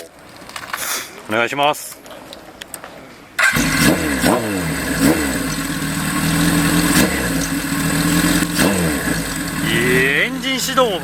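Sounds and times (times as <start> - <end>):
motorcycle engine revving and idling: 3.4 - 11.0.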